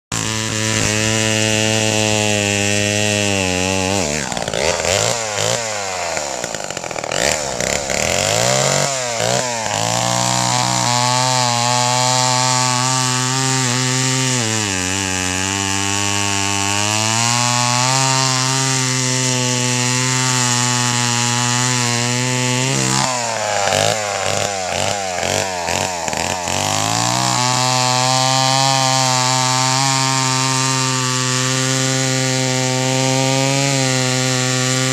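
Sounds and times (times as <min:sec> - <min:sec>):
small engine running: 0:02.1 - 0:16.1, 0:17.7 - 0:30.8.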